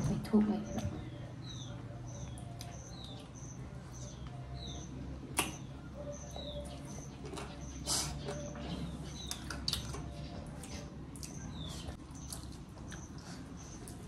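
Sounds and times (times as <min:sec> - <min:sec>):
low steady hum: 0:00.0 - 0:14.0
small bird chirping: 0:00.6 - 0:14.0.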